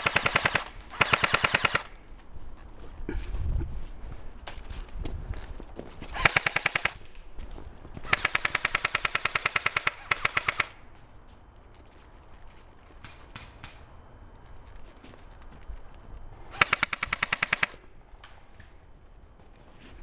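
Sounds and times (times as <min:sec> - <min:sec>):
airsoft guns firing: 0:00.0 - 0:02.0, 0:06.2 - 0:07.1, 0:08.0 - 0:10.8, 0:16.5 - 0:18.4.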